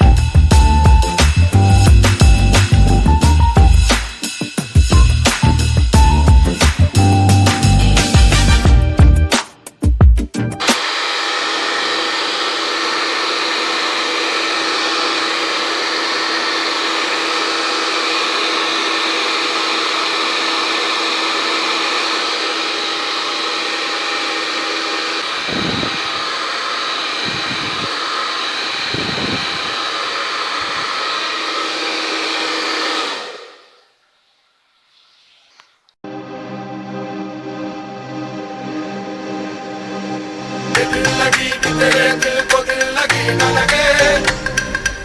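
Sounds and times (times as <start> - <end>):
hair dryer running: 0.0 - 4.2, 10.6 - 33.9, 40.8 - 45.0.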